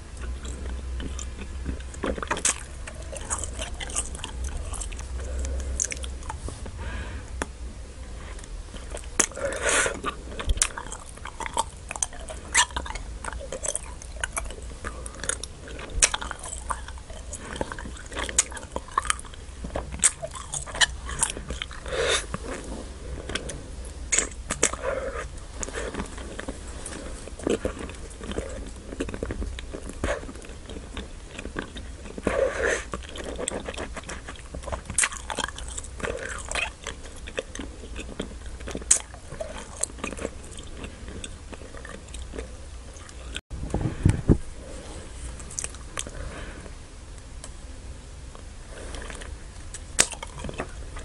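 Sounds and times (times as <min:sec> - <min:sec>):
chewing clicks: 0:08.4 - 0:21.9, 0:27.3 - 0:43.4, 0:48.3 - 0:50.8.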